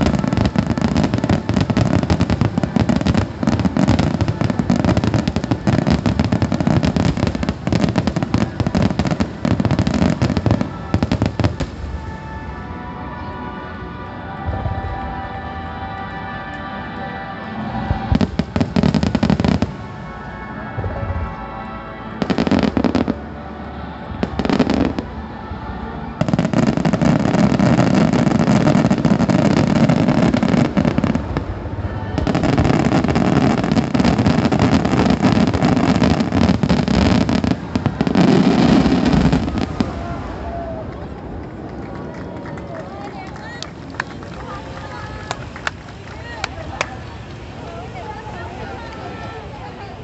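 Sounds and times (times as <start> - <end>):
fireworks crackling and banging: 0.0 - 12.4, 17.6 - 21.4, 22.2 - 23.2, 24.1 - 50.0
music: 0.0 - 50.0.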